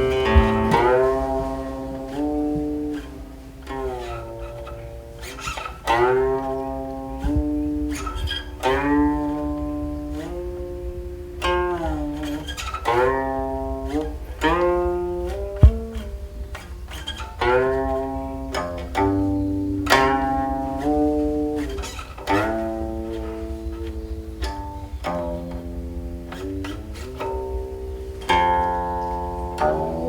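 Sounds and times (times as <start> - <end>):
plucked zither notes sliding: 0.0 - 30.0.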